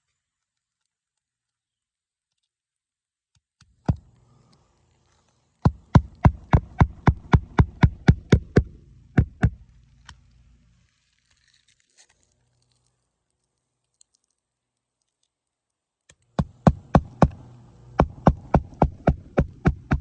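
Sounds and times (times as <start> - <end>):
hammer striking roofing nail: 5.6 - 9.6, 16.3 - 17.4, 18.0 - 20.0.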